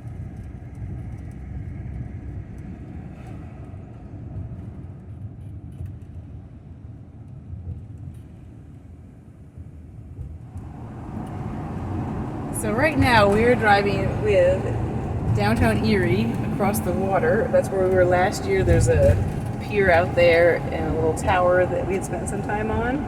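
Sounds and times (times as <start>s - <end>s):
van engine rumble: 10.3s - 23.0s.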